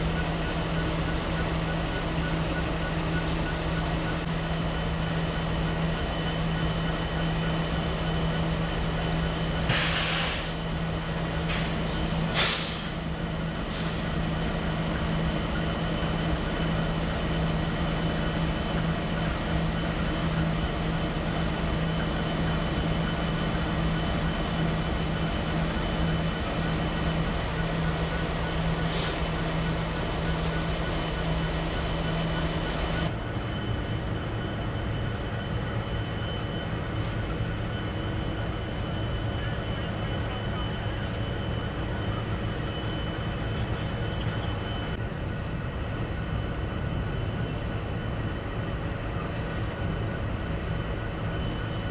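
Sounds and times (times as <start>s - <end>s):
air release hisses: 9.6s - 10.6s, 12.0s - 13.0s.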